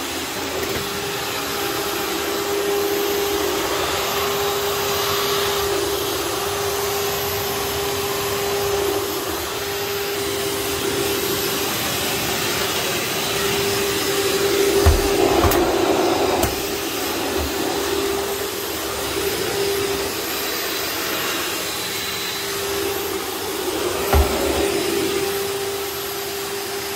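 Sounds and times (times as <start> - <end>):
upright vacuum cleaner running: 0.0 - 26.9.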